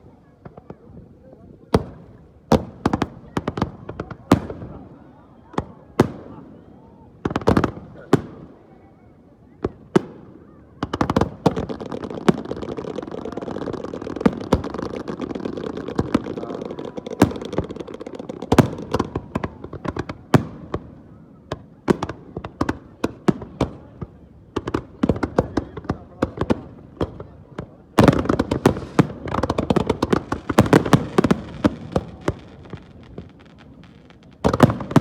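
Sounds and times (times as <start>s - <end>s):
fireworks bangs: 0.3s - 8.8s, 9.5s - 35.0s
fireworks crackle: 9.7s - 35.0s.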